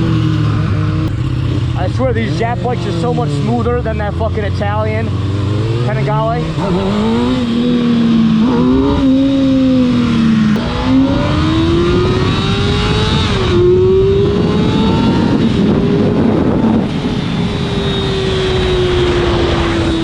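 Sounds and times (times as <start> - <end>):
motorcycle engine accelerating: 0.0 - 20.0
wind rush: 6.4 - 20.0.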